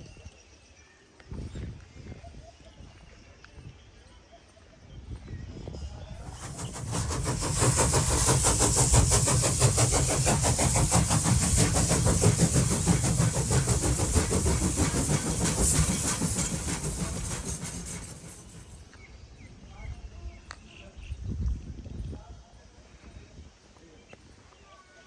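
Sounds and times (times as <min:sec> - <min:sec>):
diesel locomotive engine running: 0:06.2 - 0:19.0.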